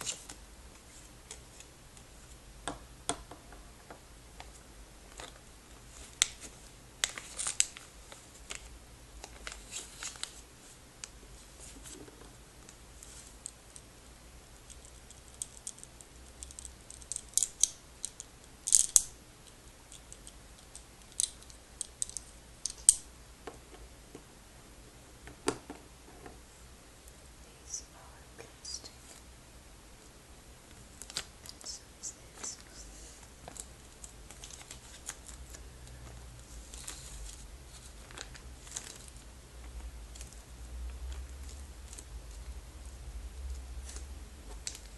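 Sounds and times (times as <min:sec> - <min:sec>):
small hard objects clicking: 0:14.7 - 0:23.0.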